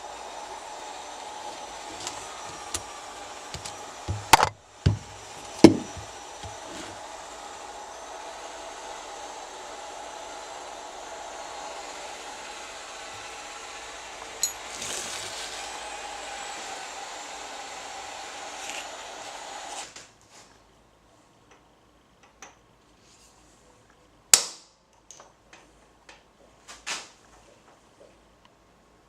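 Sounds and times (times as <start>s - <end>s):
power tool whirring: 0.0s - 19.9s
workshop clicks and knocks: 1.9s - 2.9s, 3.6s - 6.7s.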